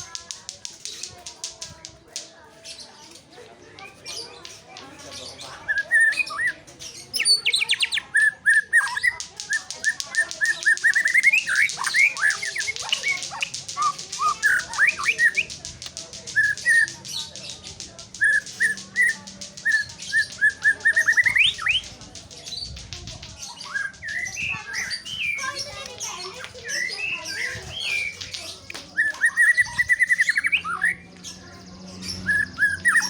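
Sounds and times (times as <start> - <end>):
bird singing: 5.0 - 33.0
fast even ticking: 9.0 - 31.0.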